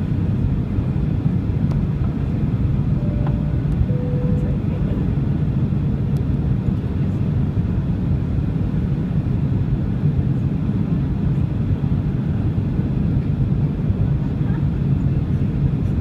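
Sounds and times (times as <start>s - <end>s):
airliner cabin engine rumble: 0.0s - 16.0s.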